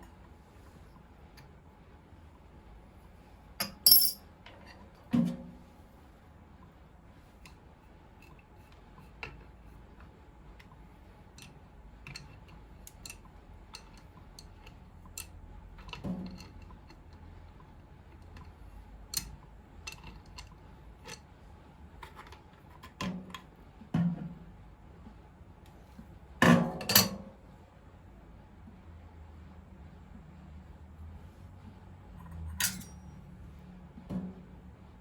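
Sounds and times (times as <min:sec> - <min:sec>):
metal tools clicking and knocking: 0:03.6 - 0:04.2, 0:32.2 - 0:33.0.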